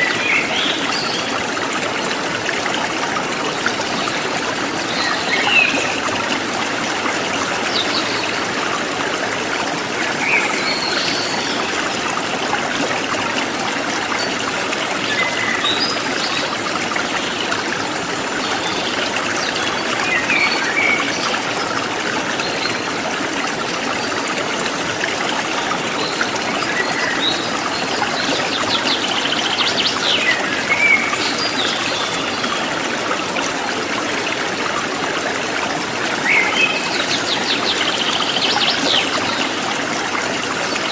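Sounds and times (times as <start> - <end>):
stream flowing and trickling: 0.0 - 40.9.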